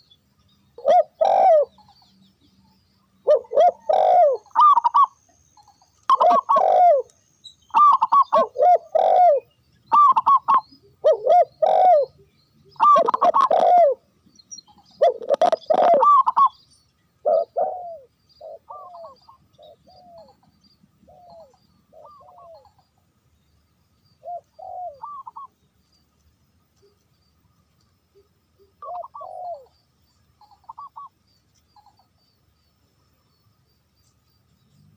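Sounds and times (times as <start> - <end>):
doves cooing: 0.8 - 2.0, 3.2 - 7.1, 7.7 - 14.1, 14.7 - 16.6, 17.2 - 22.9, 24.2 - 25.5, 28.2 - 29.8, 30.4 - 31.1.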